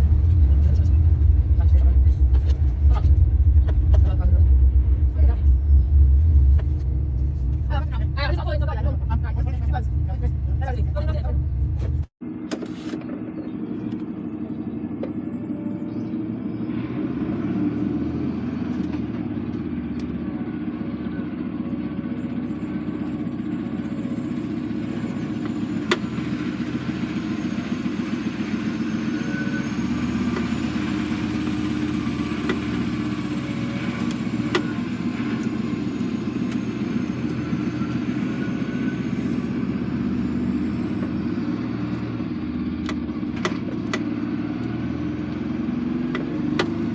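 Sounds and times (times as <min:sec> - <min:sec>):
lorry diesel engine running: 0:00.0 - 0:46.9.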